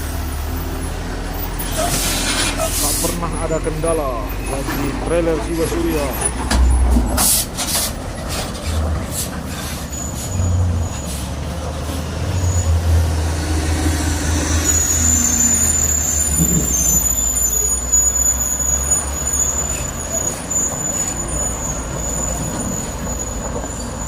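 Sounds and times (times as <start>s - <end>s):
trucks passing with diesel rumble: 0.0s - 24.0s
high steady whistle: 14.5s - 23.4s.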